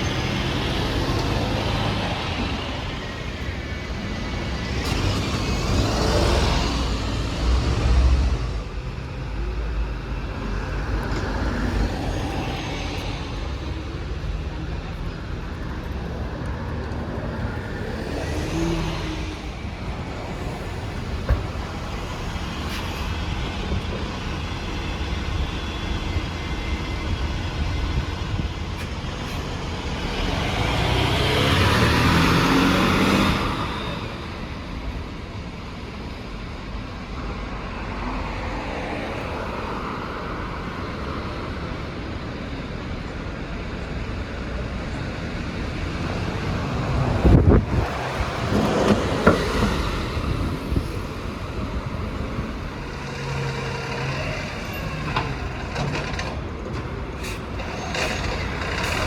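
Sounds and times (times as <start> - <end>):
street traffic rumble: 0.0 - 59.0
heavy vehicle passing: 10.4 - 25.3, 27.8 - 34.7, 45.6 - 59.0.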